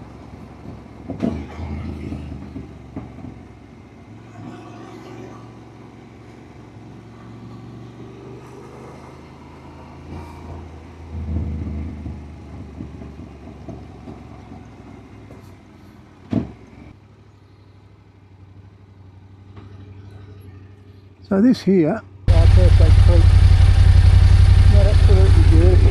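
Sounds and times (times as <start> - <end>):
motorcycle engine running: 22.3 - 25.9.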